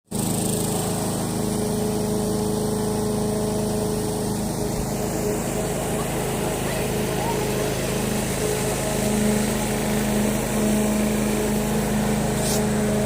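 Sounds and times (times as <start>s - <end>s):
lawnmower engine running: 0.1s - 13.0s.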